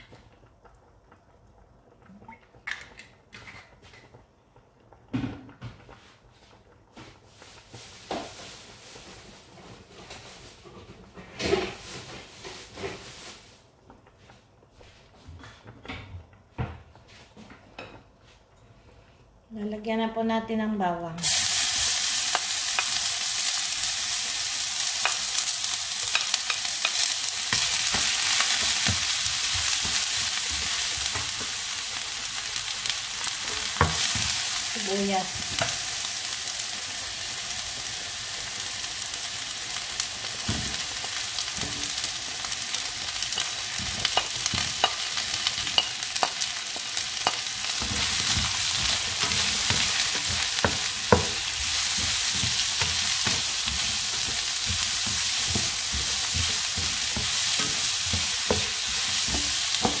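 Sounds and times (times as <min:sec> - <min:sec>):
garlic and onion sizzling in oil: 0:05.2 - 0:15.0, 0:21.2 - 1:00.0
spatula scraping and tapping wok: 0:21.8 - 0:36.1, 0:40.2 - 1:00.0.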